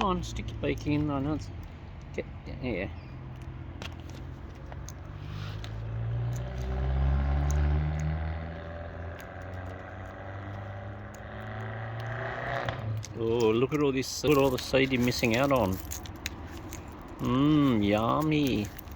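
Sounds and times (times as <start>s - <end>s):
vehicle driving past: 5.1s - 13.1s.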